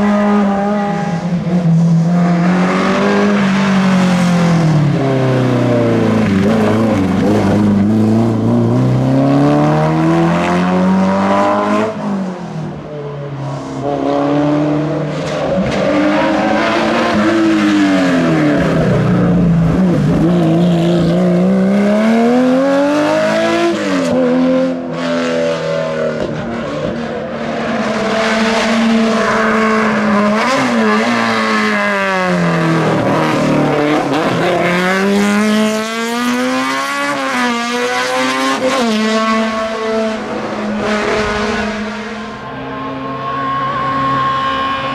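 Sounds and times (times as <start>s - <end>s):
racing car engine revving: 13.6s - 44.9s.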